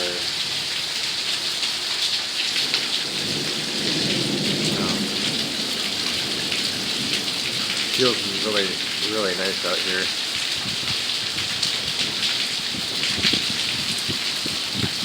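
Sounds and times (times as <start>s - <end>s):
heavy rain falling: 0.0s - 15.0s
thunder rumbling: 2.5s - 15.0s.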